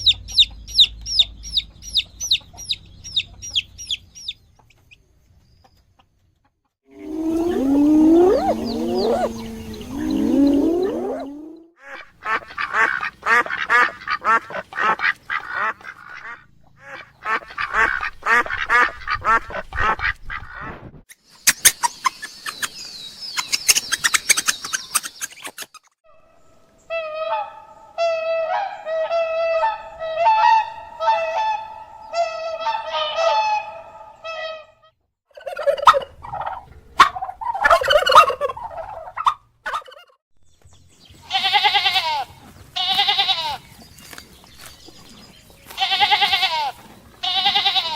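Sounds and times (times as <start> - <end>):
geese honking: 6.9 - 16.4
ducks quacking: 6.9 - 20.8.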